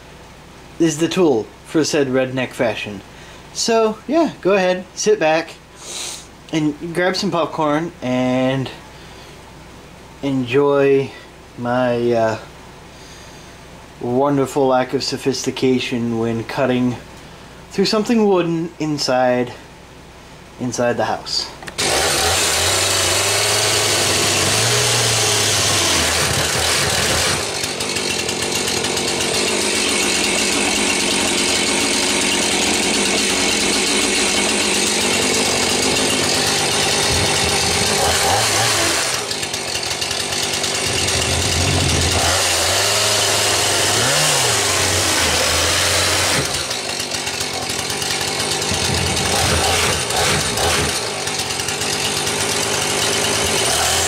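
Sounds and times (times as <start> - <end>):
chainsaw cutting wood: 21.6 - 54.0.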